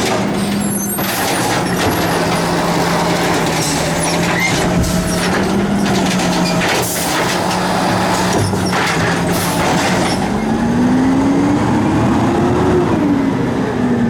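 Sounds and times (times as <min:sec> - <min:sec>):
mechanical clatter: 0:00.0 - 0:10.3
garbage truck engine drone: 0:00.0 - 0:14.0.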